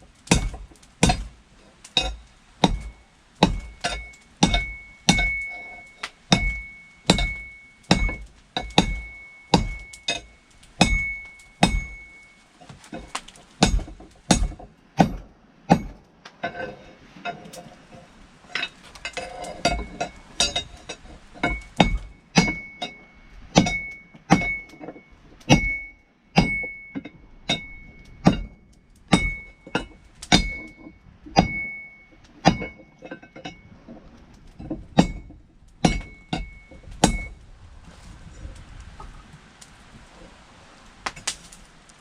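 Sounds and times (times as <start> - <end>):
hammer striking steel on anvil: 0.3 - 1.3, 2.0 - 12.2, 13.6 - 16.6, 18.6 - 24.8, 25.5 - 33.6, 35.0 - 37.3.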